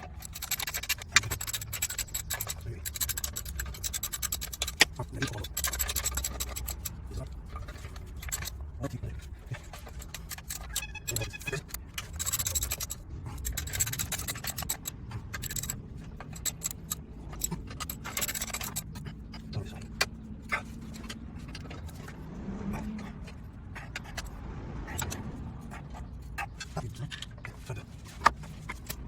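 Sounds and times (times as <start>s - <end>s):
metal tools clicking and scraping: 0.0s - 29.0s
ringing metal clink: 9.6s - 19.1s.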